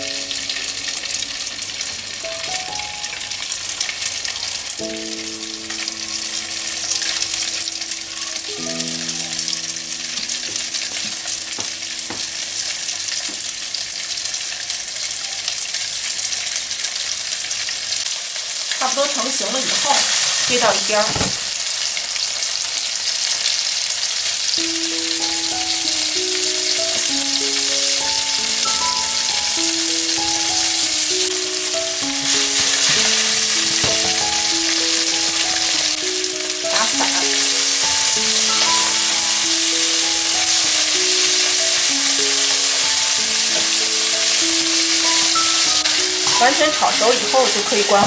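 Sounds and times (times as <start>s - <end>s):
background music with held notes: 0.0s - 14.5s, 24.1s - 48.0s
chicken sizzling in oil: 0.0s - 48.0s.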